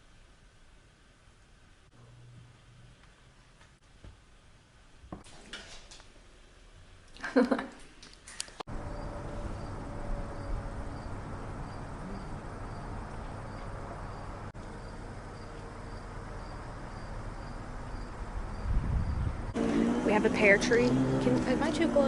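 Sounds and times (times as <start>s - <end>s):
low outdoor rumble: 8.7s - 22.0s
insect chirping: 8.8s - 19.4s.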